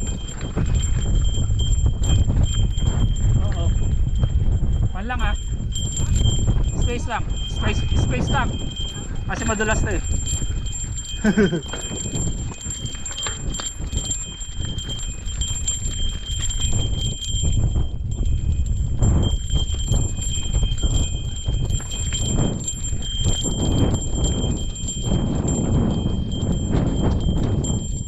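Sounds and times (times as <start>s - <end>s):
footsteps on rocky trail: 0.0s - 4.3s, 5.4s - 17.5s, 19.3s - 27.9s
wind on microphone: 0.0s - 28.0s
mountain bike clattering: 8.6s - 16.6s.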